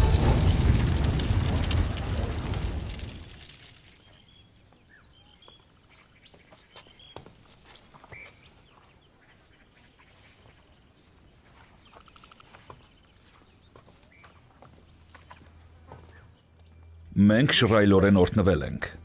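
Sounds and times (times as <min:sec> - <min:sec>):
birdsong chirps and trill: 0:03.8 - 0:18.3.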